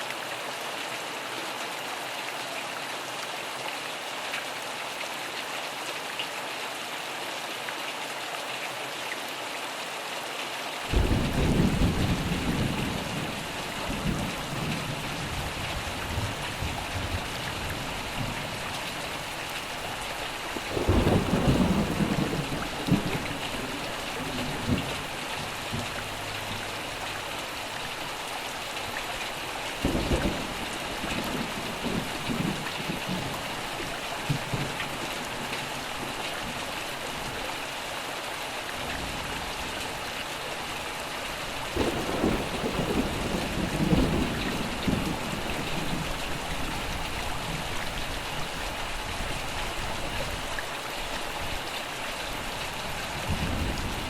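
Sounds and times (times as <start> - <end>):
steady rainfall: 0.0 - 54.0
thunder rumbling: 10.9 - 18.6, 20.5 - 27.3, 29.8 - 36.6, 41.7 - 47.8, 53.2 - 54.0.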